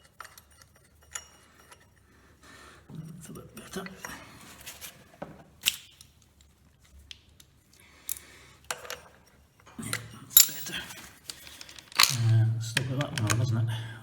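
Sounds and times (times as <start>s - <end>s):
small metal parts clinking: 9.9s - 12.4s.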